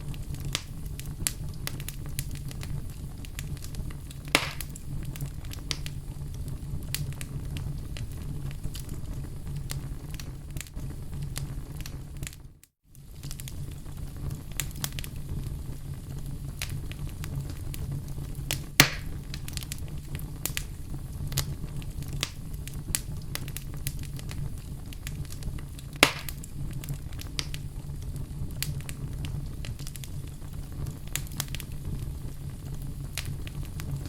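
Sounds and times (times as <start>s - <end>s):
wood fire crackling: 0.0s - 34.0s
sharp pops of burning wood: 0.2s - 9.0s, 16.6s - 17.8s, 18.5s - 20.7s, 21.3s - 32.1s, 32.9s - 34.0s.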